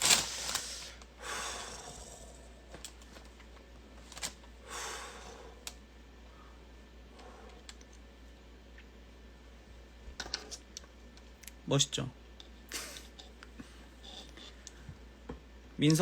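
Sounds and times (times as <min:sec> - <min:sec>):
soft breaths: 0:04.6 - 0:08.0.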